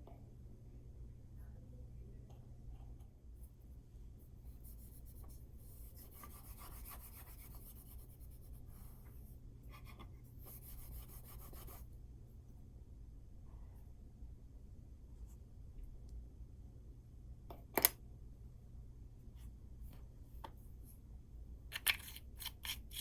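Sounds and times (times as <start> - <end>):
faint scratching and rubbing: 2.2 - 11.9.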